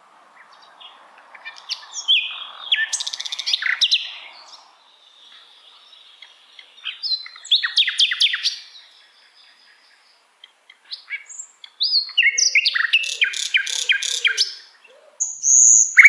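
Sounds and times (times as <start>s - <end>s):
bird singing sharp whistles: 15.2s - 16.0s.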